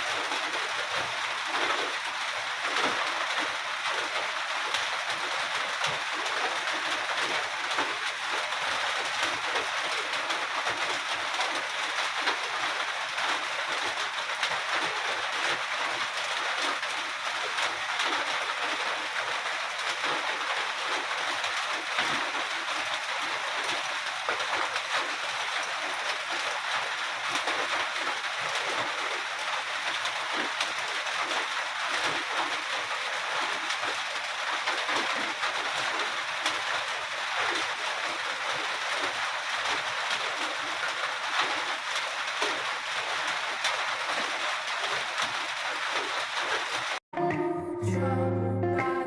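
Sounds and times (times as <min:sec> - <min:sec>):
steady rainfall: 0:00.0 - 0:47.0
plucked guitar music: 0:47.2 - 0:49.0.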